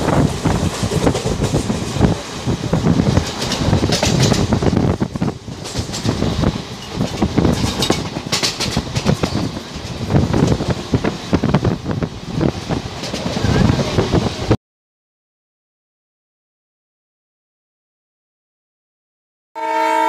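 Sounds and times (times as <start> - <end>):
train running noise: 0.0 - 14.6
train wheels clattering on rails: 0.0 - 14.6.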